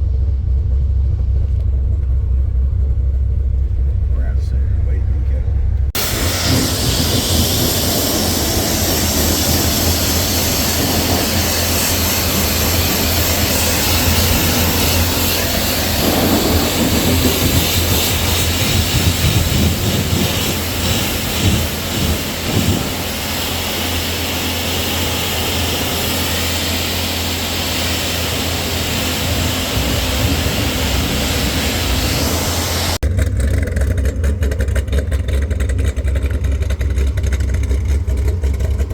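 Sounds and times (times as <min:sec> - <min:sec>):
car engine droning: 0:00.0 - 0:38.9
loud steady rushing noise: 0:04.1 - 0:33.0.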